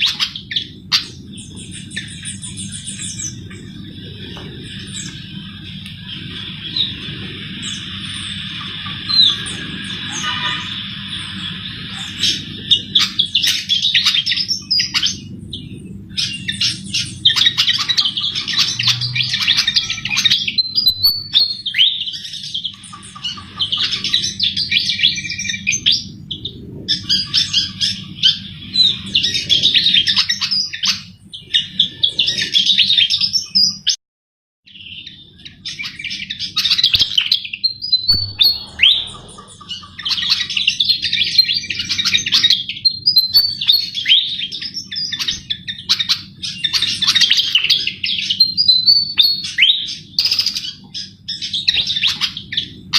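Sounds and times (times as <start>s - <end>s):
steady low hum: 0.0s - 33.3s, 35.2s - 42.9s.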